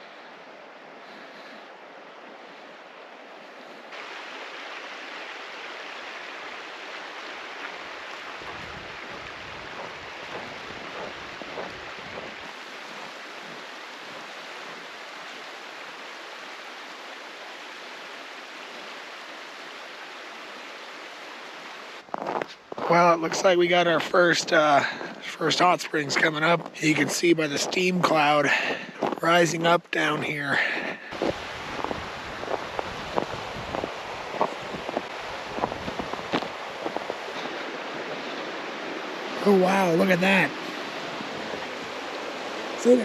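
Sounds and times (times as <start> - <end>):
mountain creek rushing: 0.0 - 43.0
wind rumble on microphone: 8.3 - 15.0, 31.2 - 39.4.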